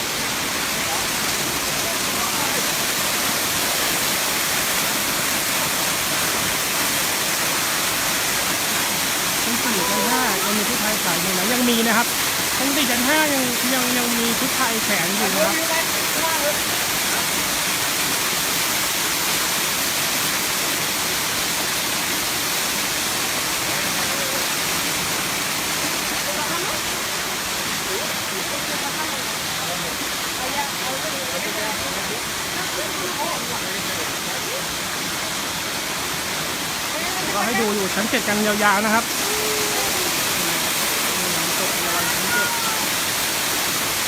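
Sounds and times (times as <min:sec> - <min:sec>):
waterfall roaring: 0:00.0 - 0:44.0.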